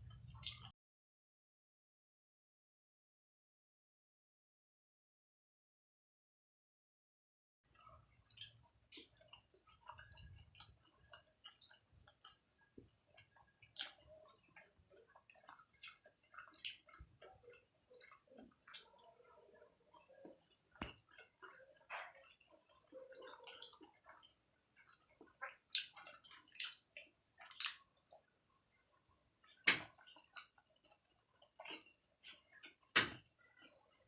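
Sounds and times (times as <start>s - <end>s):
dumplings being chewed: 0.0s - 0.7s, 7.7s - 34.0s.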